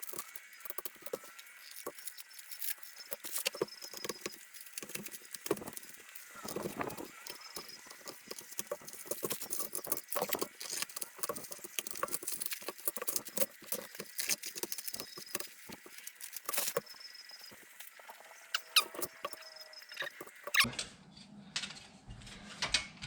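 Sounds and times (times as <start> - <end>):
packing material rustling: 0.0 - 18.0.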